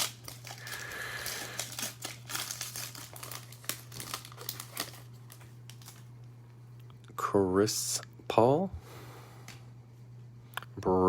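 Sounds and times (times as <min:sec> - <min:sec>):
foil wrapper tearing and crinkling: 0:00.0 - 0:06.1
low electrical hum: 0:00.0 - 0:11.0.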